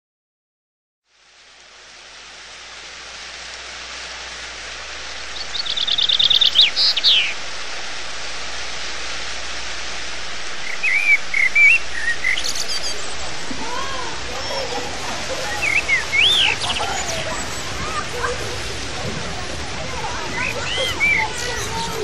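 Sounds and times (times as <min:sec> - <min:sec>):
steady hiss: 0:01.1 - 0:22.0
birds singing: 0:05.0 - 0:08.1, 0:10.5 - 0:22.0.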